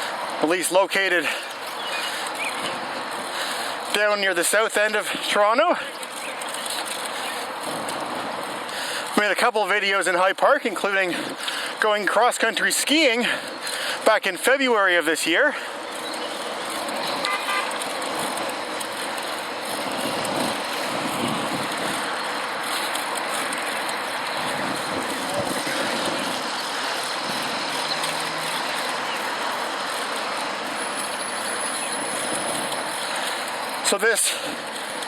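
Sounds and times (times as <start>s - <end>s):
expressway traffic: 0.0s - 35.0s
wind on microphone: 19.7s - 22.2s, 23.8s - 28.7s.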